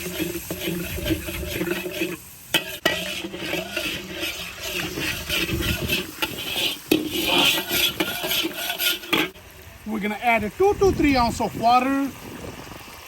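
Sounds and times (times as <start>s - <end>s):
spatula scraping a pan: 0.0s - 9.4s
food sizzling in a pan: 0.0s - 13.0s.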